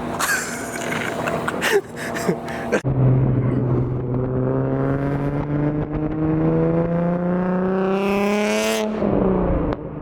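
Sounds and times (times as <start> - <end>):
car engine accelerating: 2.8 - 10.0.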